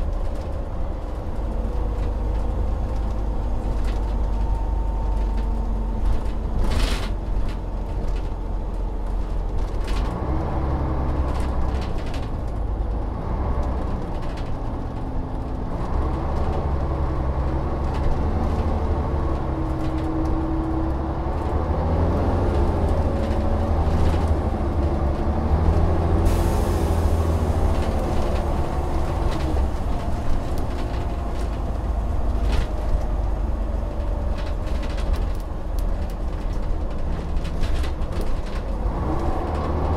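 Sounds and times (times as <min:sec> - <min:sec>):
bus diesel engine: 0:00.0 - 0:39.9
vehicle rattles and knocks: 0:00.0 - 0:39.9
hiss: 0:26.3 - 0:27.4.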